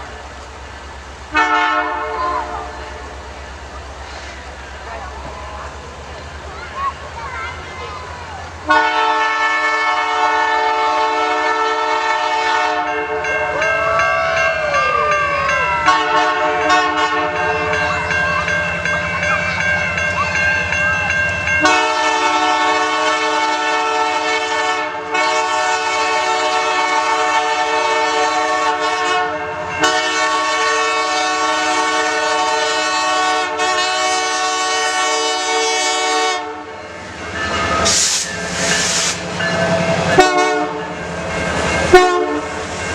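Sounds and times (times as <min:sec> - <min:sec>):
locomotive rumble: 0:00.0 - 0:42.9
locomotive air horn blasts: 0:01.3 - 0:03.2, 0:08.6 - 0:13.5, 0:15.8 - 0:17.8, 0:21.6 - 0:36.7, 0:40.1 - 0:40.8, 0:41.9 - 0:42.6
train wheels clattering on rails: 0:36.9 - 0:42.9.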